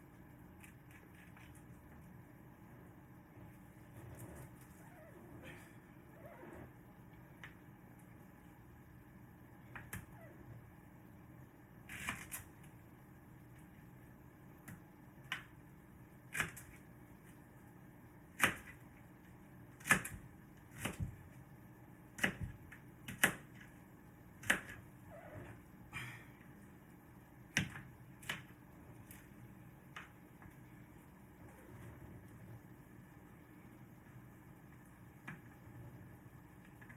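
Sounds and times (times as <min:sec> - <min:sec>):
faint steady hum: 0:00.0 - 0:36.9.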